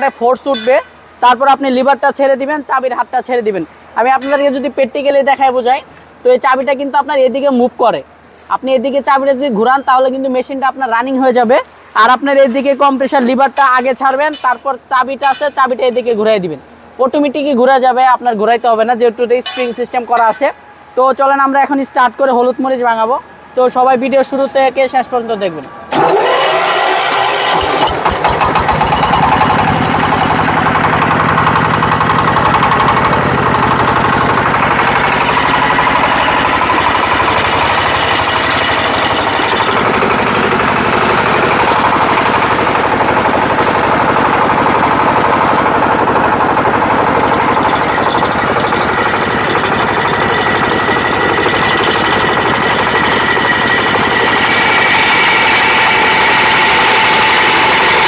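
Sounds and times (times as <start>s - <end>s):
diesel engine running: 25.9s - 58.0s.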